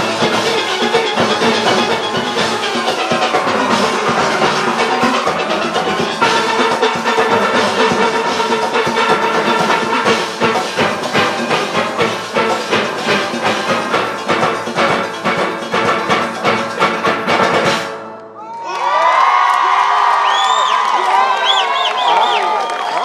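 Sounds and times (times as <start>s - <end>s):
drums and percussion beat: 0.0s - 18.1s.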